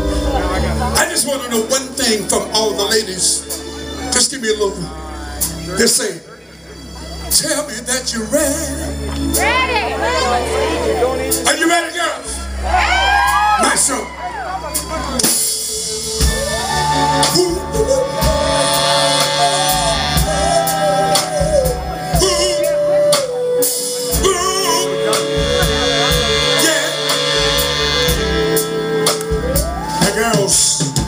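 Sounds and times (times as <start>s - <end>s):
soul band playing: 0.0s - 31.0s
person singing: 15.7s - 28.1s.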